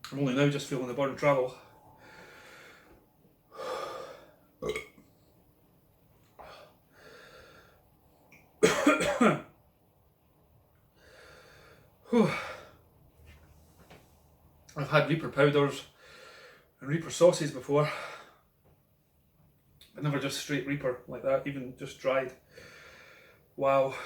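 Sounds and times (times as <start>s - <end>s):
man breathing hard through mouth: 1.8s - 4.4s, 6.4s - 7.9s, 22.5s - 23.4s.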